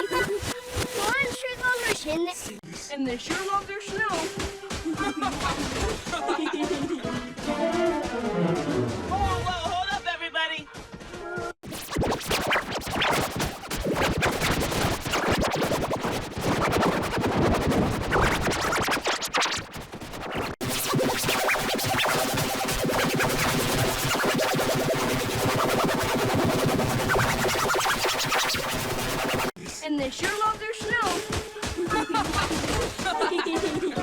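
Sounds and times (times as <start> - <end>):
distorted cartoon soundtrack: 11.6 - 29.6
buzzing drone of stacked tones: 20.2 - 29.5.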